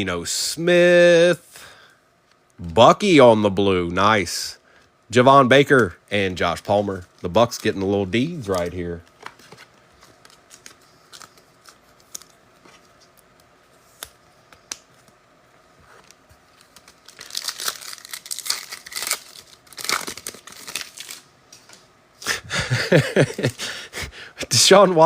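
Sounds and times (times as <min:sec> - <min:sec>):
wrapper tearing and crinkling: 0:07.4 - 0:13.3, 0:16.0 - 0:21.3.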